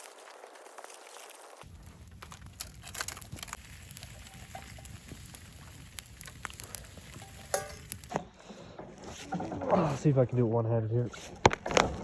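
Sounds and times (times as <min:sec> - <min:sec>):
campfire crackling and hissing: 0:00.0 - 0:10.3
sharp pops of fire: 0:01.6 - 0:08.4.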